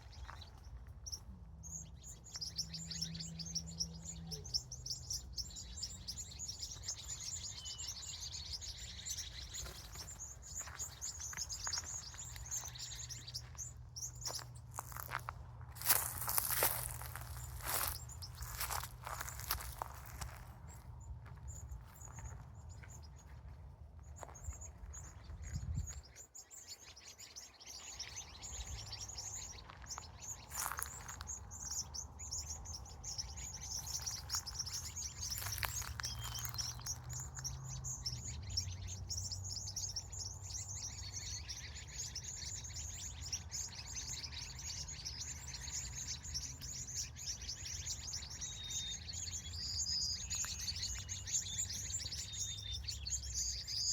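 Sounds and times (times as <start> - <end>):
small birds chirping: 0.0 - 53.9.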